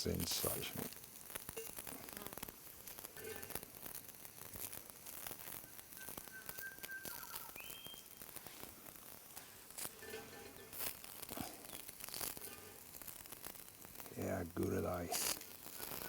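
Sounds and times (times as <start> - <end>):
food sizzling in a frying pan: 0.0 - 16.0
high whistling tone: 5.5 - 8.3.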